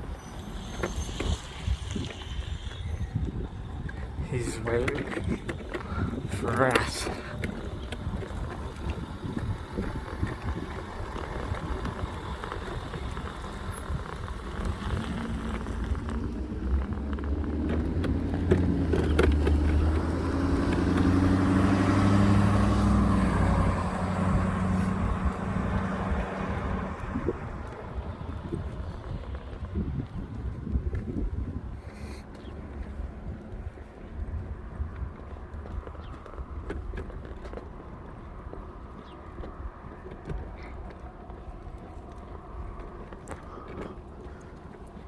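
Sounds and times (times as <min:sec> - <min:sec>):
vehicle engine passing by: 0:00.0 - 0:30.8
steady outdoor rumble: 0:00.0 - 0:45.0.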